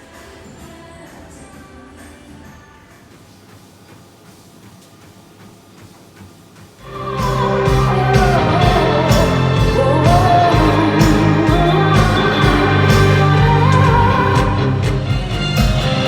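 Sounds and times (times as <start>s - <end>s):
rock music with singing: 6.8s - 16.0s.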